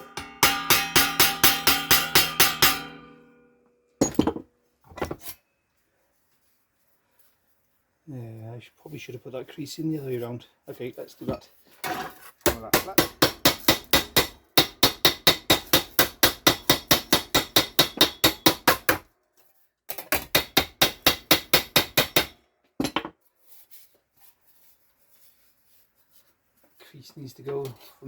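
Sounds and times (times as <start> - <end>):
hammer striking sheet steel: 0.0 - 3.5, 12.5 - 18.9, 20.2 - 22.4.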